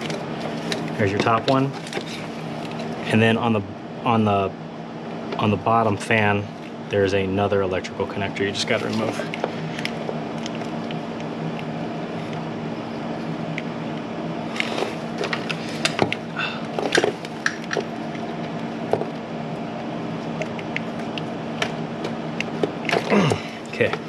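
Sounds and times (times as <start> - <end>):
steady background hum: 0.0 - 24.0.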